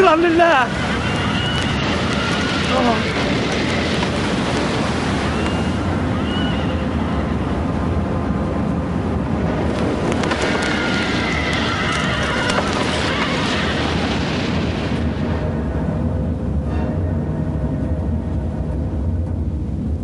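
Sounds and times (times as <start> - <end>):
loud steady rushing noise: 0.0 - 20.0
horses whinnying: 0.7 - 4.4, 10.1 - 14.1.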